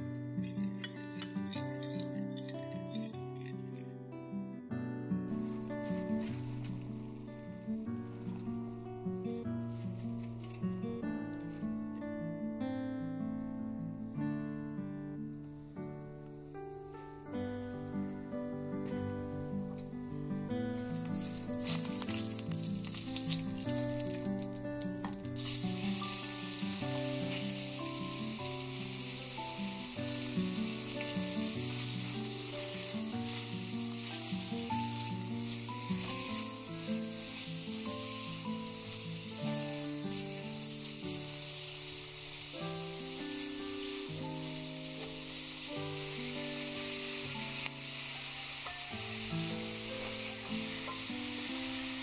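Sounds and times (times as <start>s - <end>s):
background music melody: 0.0s - 52.0s
meat sizzling in a wok: 20.8s - 52.0s.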